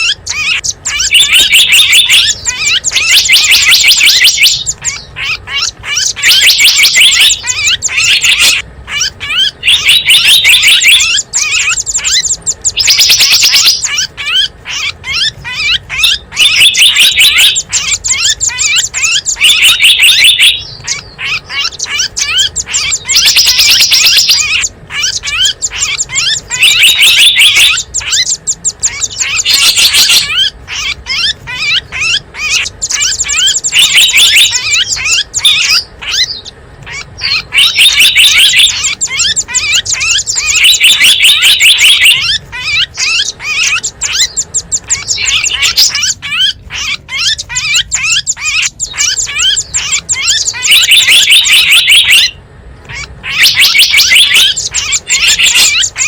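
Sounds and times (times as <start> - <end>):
recorded songbird chirping trills: 0.0 - 56.0.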